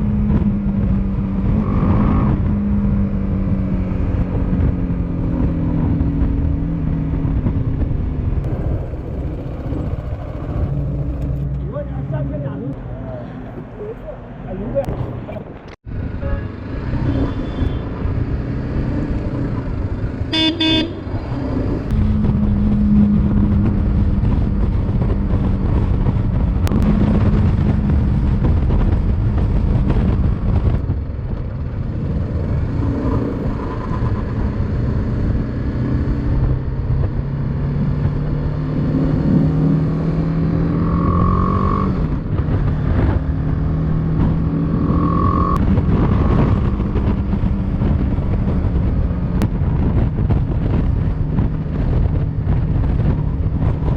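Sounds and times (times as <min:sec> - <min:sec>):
motorcycle engine and road noise: 0:00.0 - 0:53.9
vehicle horn toot: 0:16.2 - 0:17.9, 0:20.3 - 0:21.0.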